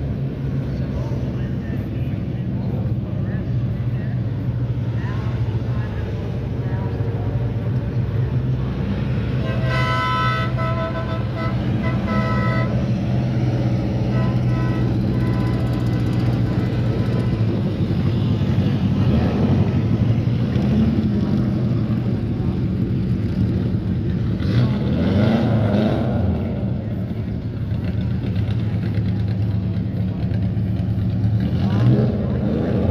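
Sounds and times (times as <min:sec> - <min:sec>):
vehicle engine running: 0:00.0 - 0:32.9
horn toots: 0:09.4 - 0:13.0, 0:14.0 - 0:16.6.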